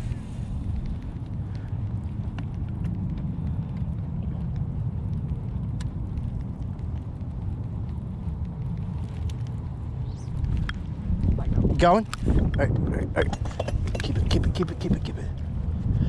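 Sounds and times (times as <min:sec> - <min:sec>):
wind buffeting microphone: 0:00.0 - 0:16.0
faint small clicks: 0:00.8 - 0:07.0, 0:08.6 - 0:10.8.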